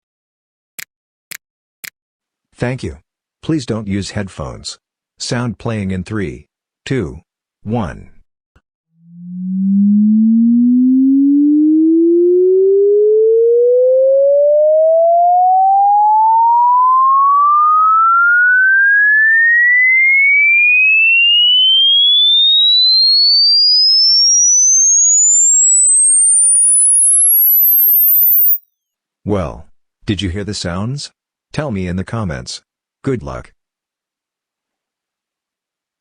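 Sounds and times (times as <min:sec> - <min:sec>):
rising sine tone sweep: 0:09.0 - 0:28.6.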